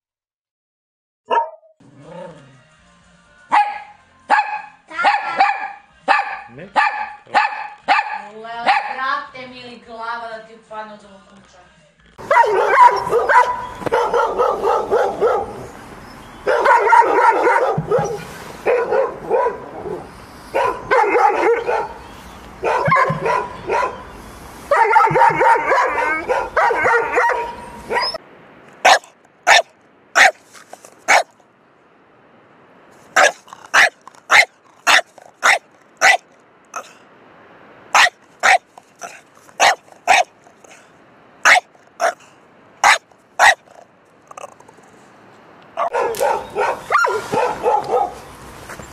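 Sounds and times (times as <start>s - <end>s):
dogs barking: 1.3s - 1.7s, 3.5s - 9.0s, 12.2s - 15.8s, 16.4s - 22.0s, 22.6s - 24.1s, 24.7s - 28.2s, 28.8s - 30.4s, 31.0s - 31.3s, 33.2s - 37.0s, 37.9s - 44.7s, 45.8s - 48.3s.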